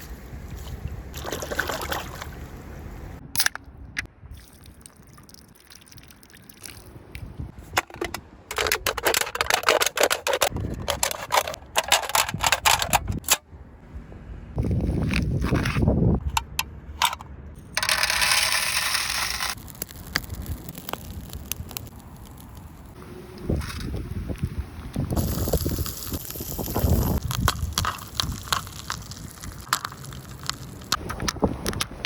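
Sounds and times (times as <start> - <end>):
popcorn popping: 25.2 - 31.8.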